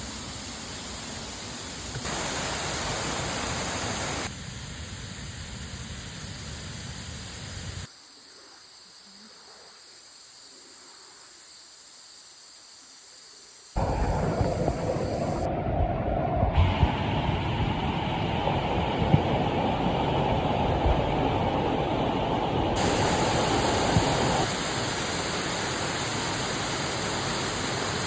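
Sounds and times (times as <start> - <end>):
waterfall rushing: 2.0 - 4.3, 13.8 - 15.5, 16.6 - 28.0
loud noise: 13.8 - 19.6.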